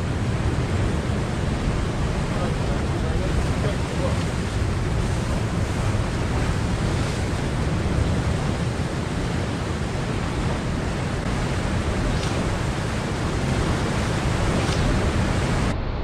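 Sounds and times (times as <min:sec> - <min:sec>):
surf washing on shore: 0:00.0 - 0:15.7
wind rumble on microphone: 0:00.0 - 0:16.0.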